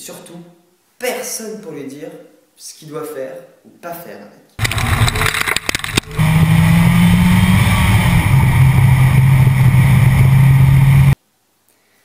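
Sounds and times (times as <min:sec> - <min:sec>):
car engine drone: 0:04.6 - 0:11.2.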